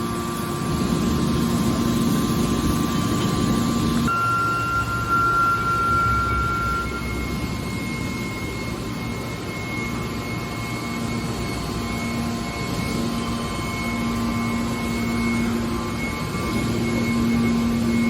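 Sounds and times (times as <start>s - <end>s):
baler mechanical drone: 0.0s - 18.0s
thin high whine: 0.0s - 18.0s
low hum: 4.1s - 9.9s.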